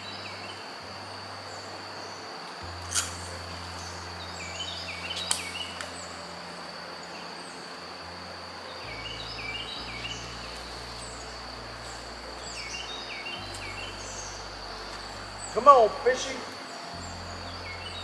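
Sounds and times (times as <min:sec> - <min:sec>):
high-pitched insect drone: 0:00.0 - 0:18.0
sharp click: 0:02.8 - 0:03.3, 0:05.2 - 0:05.9.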